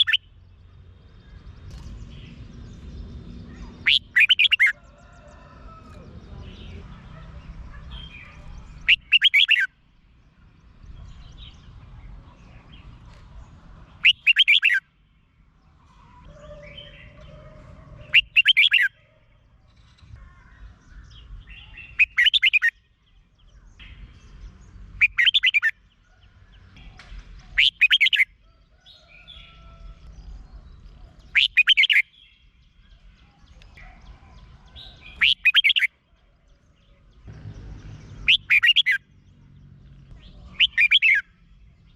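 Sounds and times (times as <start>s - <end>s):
bird singing warbled phrase: 0.0s - 0.4s, 1.3s - 4.9s, 5.8s - 9.9s, 14.0s - 14.9s, 15.8s - 19.4s, 20.2s - 26.0s, 27.5s - 28.3s, 30.2s - 36.0s, 36.6s - 41.9s
bird chirps: 0.0s - 5.1s, 5.7s - 15.0s, 15.8s - 41.9s.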